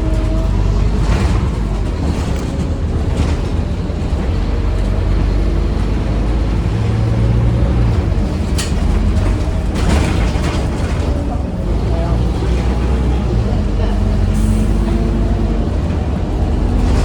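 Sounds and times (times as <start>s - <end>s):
bus diesel engine rumble: 0.0s - 17.0s.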